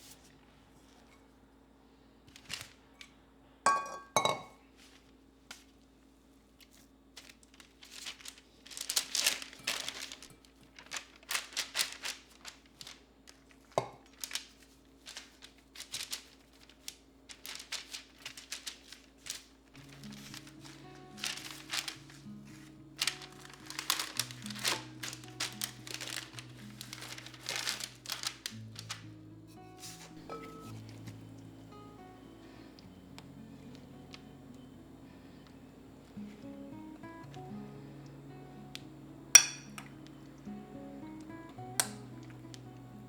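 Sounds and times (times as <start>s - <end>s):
faint steady hum: 0.0s - 43.0s
packaging crinkling: 2.3s - 3.0s, 6.5s - 43.0s
glass clinking set down: 3.7s - 4.6s, 30.2s - 31.0s, 39.4s - 39.9s.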